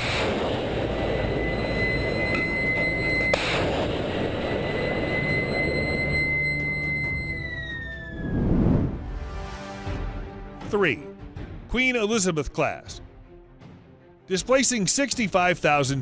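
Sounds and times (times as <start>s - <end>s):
jet engine whine: 0.0s - 9.3s
jet engine rushing roar: 0.0s - 9.6s.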